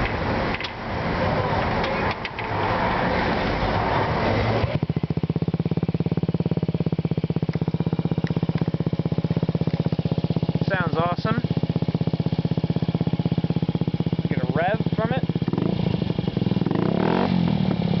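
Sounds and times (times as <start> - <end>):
scooter engine idling: 4.2 - 18.0.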